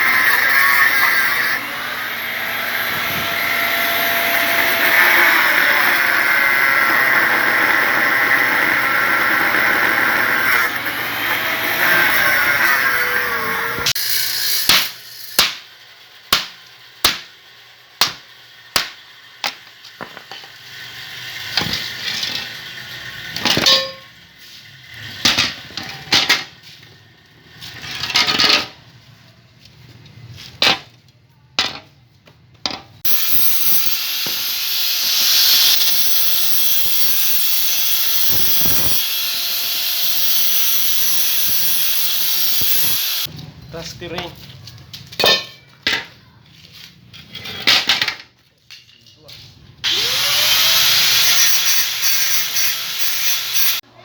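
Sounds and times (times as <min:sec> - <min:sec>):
whirring machine: 0:00.1 - 0:15.3.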